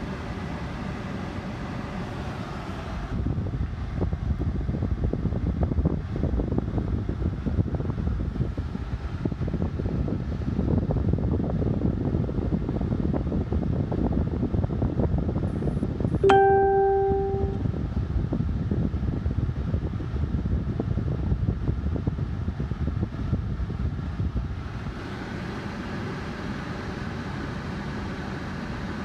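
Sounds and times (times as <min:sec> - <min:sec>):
gusty wind buffeting microphone: 0:03.1 - 0:16.1.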